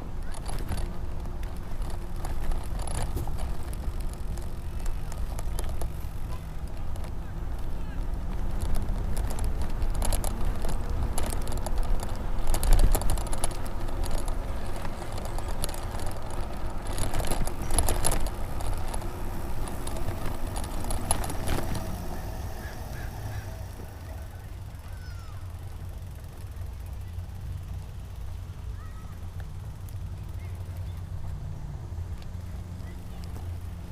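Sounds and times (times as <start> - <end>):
bike rattles and clicks: 0.0 - 33.9
wind and tyres rumbling: 0.0 - 33.9.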